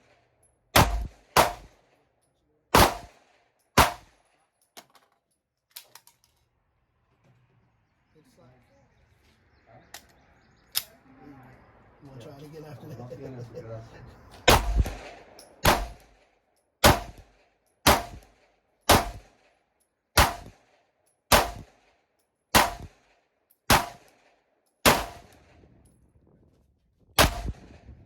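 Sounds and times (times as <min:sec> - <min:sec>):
pistol shots: 0:00.0 - 0:01.9, 0:02.7 - 0:04.3, 0:14.4 - 0:19.5, 0:20.2 - 0:21.9, 0:22.5 - 0:25.5, 0:27.2 - 0:27.9.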